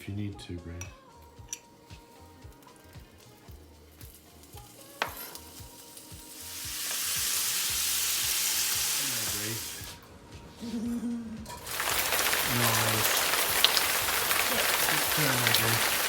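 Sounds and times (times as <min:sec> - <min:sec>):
chicken sizzling in hot oil: 0:01.8 - 0:10.0, 0:11.5 - 0:16.0.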